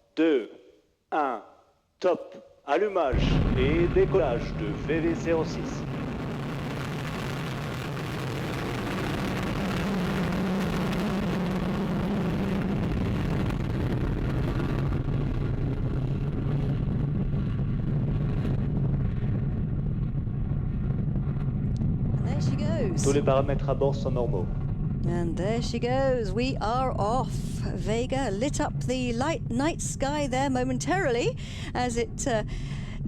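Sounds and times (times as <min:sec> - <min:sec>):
rocket motor roaring: 0:03.2 - 0:28.6.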